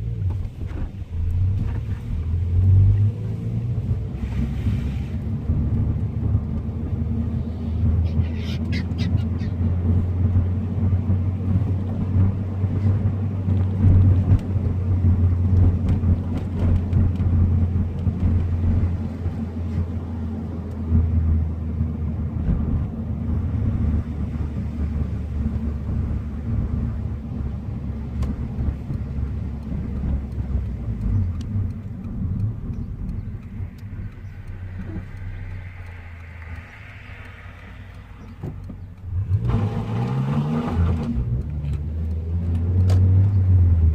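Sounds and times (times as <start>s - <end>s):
car engine low drone: 0.0s - 43.9s.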